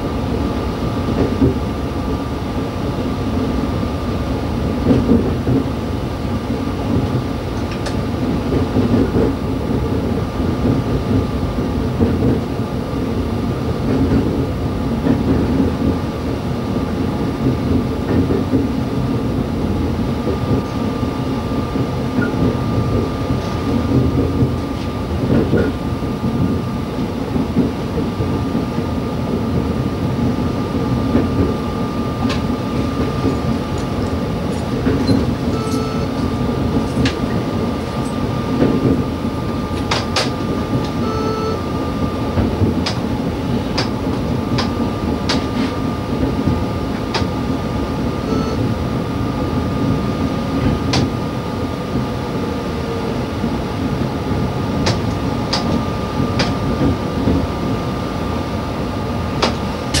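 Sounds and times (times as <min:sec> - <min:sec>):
train engine and wheels rumbling: 0:00.0 - 1:00.0
short beeps: 0:35.5 - 0:36.2, 0:41.0 - 0:41.6, 0:48.3 - 0:48.7.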